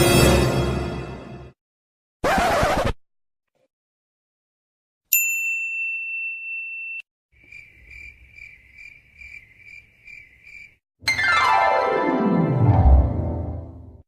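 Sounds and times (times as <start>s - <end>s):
bright high ding: 5.1s - 7.0s
crickets chirping: 7.4s - 10.8s.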